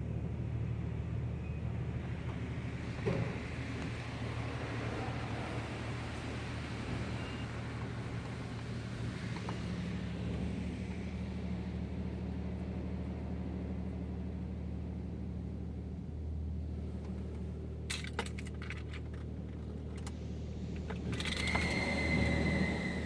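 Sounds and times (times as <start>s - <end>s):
sharp clicks and rattles: 17.9s - 20.2s.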